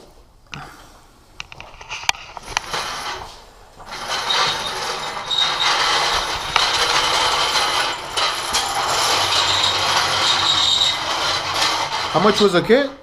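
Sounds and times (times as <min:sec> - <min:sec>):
high squeak: 0:03.9 - 0:12.6.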